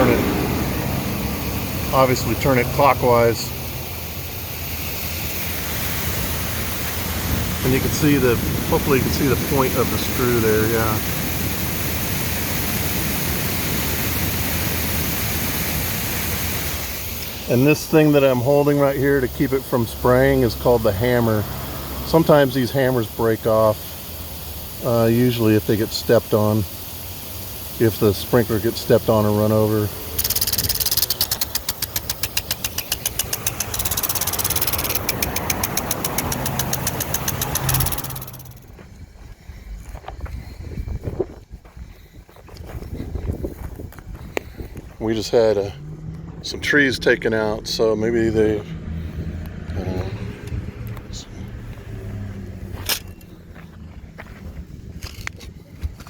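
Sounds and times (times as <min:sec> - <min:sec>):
sprinkler water jet hissing: 0:00.0 - 0:39.1
impact sprinkler ticking: 0:27.7 - 0:38.8.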